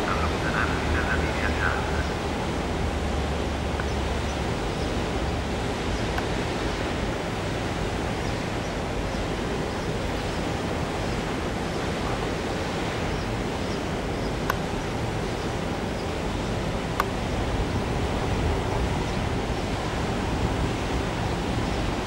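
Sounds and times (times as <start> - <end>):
wind on microphone: 17.0 - 22.0.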